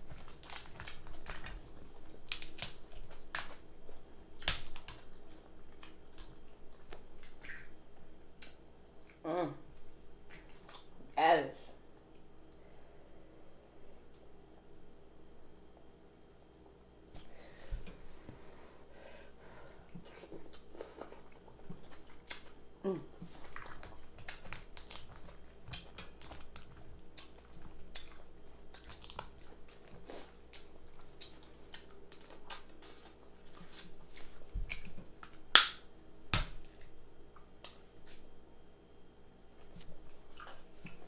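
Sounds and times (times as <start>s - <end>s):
person chewing: 0.0s - 9.2s, 19.8s - 35.8s, 39.7s - 41.0s.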